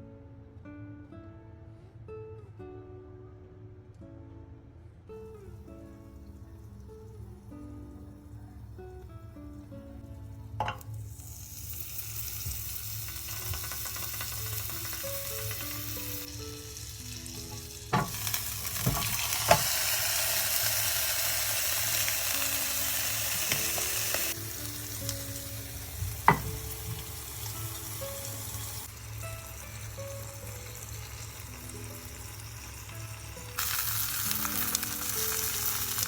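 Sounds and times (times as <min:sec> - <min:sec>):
chicken sizzling in a pan: 0:10.6 - 0:36.0.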